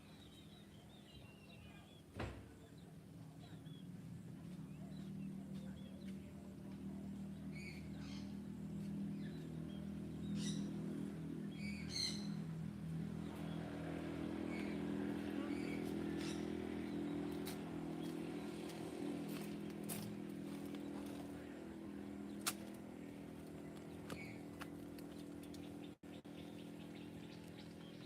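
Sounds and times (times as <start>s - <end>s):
bird chirps: 0.0s - 18.6s
vehicle engine hum: 0.0s - 28.0s.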